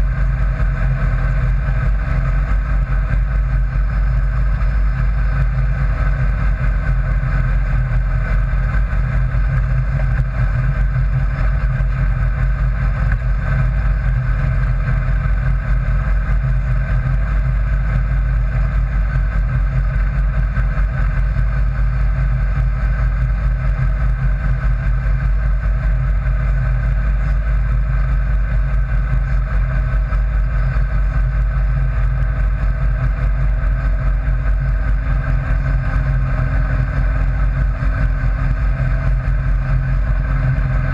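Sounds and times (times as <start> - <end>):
engine deep drone: 0.0 - 40.9.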